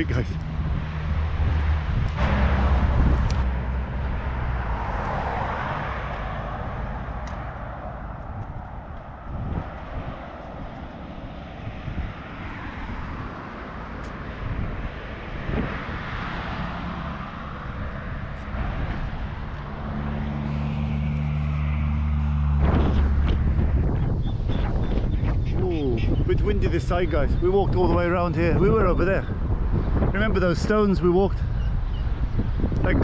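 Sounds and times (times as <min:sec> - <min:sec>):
heavy engine low hum: 0:00.0 - 0:16.1, 0:16.8 - 0:25.2
road traffic passing: 0:00.0 - 0:33.0.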